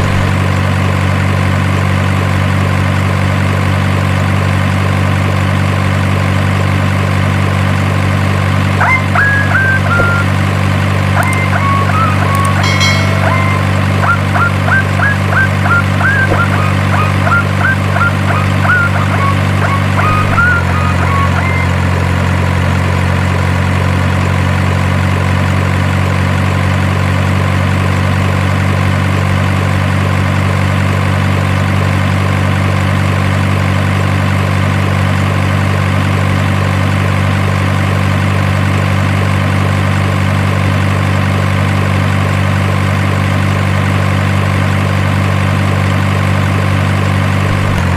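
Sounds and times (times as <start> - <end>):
truck engine idling: 0.0 - 47.9
short high chirps: 8.8 - 10.3, 11.2 - 21.7.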